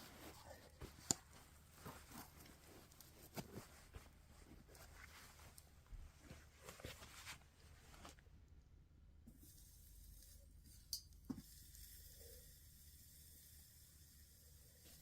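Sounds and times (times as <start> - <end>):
faint rustling: 0.0 - 8.4
faint steady hiss: 0.0 - 15.0.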